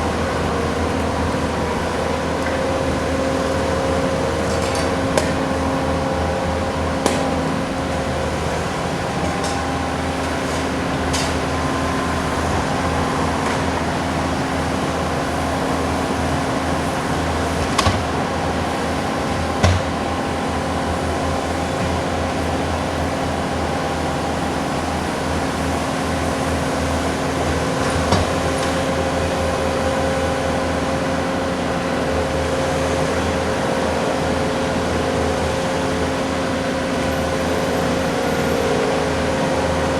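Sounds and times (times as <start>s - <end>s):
diesel engines droning: 0.0s - 39.9s.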